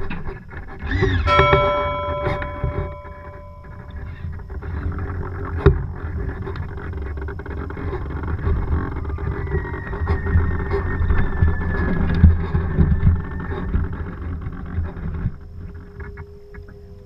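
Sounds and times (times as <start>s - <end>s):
low rumbling wind: 0.0s - 17.0s.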